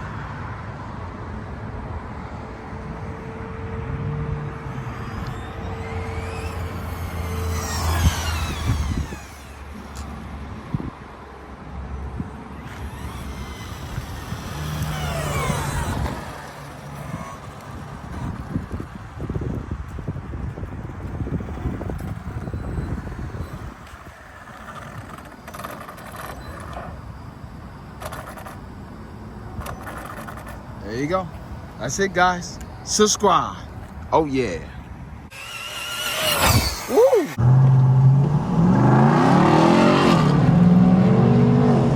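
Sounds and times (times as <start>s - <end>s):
low engine rumble: 1.1s - 33.0s
vehicle passing close by: 2.2s - 9.8s, 12.6s - 19.4s.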